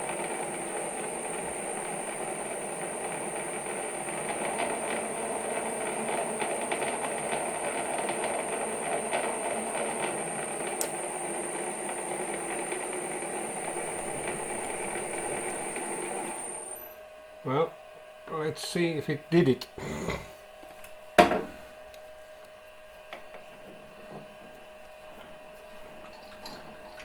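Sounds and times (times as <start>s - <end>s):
metal lathe running: 0.0s - 17.0s
high whine: 0.0s - 17.7s.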